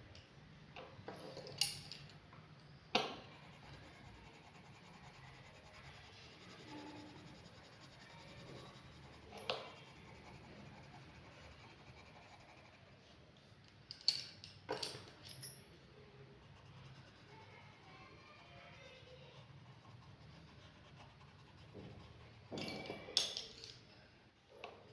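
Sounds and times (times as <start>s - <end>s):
pen scratching on paper: 3.2s - 12.9s, 19.4s - 22.5s.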